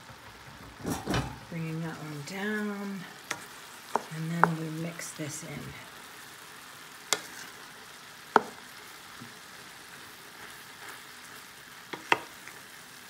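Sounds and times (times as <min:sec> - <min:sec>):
meat and cabbage sizzling: 0:00.0 - 0:13.0
spatula knocking pan: 0:03.3 - 0:04.8, 0:08.3 - 0:08.6, 0:11.9 - 0:12.4.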